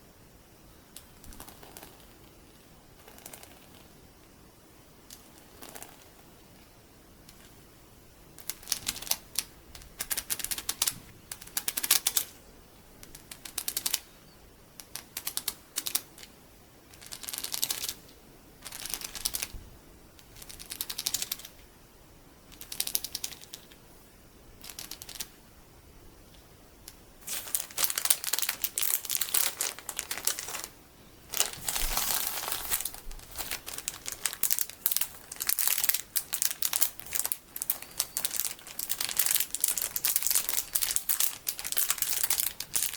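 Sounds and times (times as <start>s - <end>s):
plastic beads clicking: 13.0s - 14.0s, 14.8s - 16.3s, 18.6s - 19.5s, 20.2s - 21.5s, 22.5s - 23.8s, 24.6s - 25.3s, 26.9s - 30.7s, 31.3s - 42.9s
plastic packaging crinkling: 27.2s - 42.9s.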